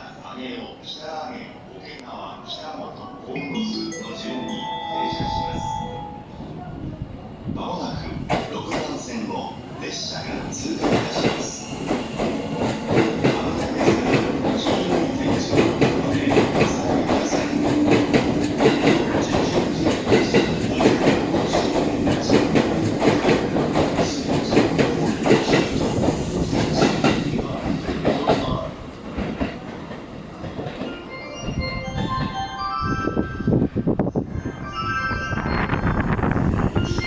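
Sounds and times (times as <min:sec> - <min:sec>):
station chime of stepped tones: 0:03.4 - 0:06.3
train wheels clattering over rail joints: 0:10.8 - 0:30.9.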